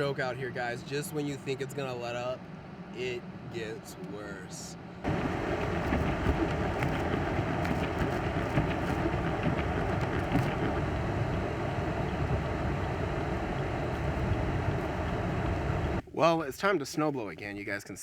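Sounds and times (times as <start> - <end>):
strong blizzard wind: 4.8 - 16.0
small ticks: 5.1 - 16.0.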